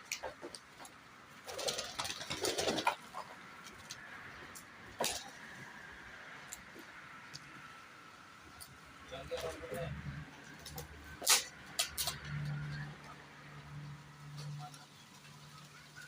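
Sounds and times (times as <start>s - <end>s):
pigeons rustling: 0.0s - 7.5s.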